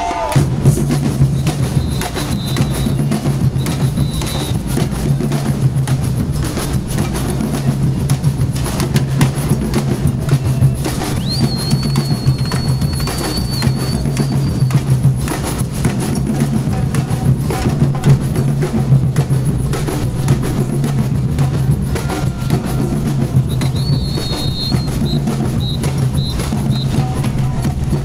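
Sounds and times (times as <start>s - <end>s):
drums beating rapid rhythm: 0.0s - 28.0s
high whistle toots: 1.4s - 4.7s, 10.3s - 14.8s, 23.4s - 27.6s.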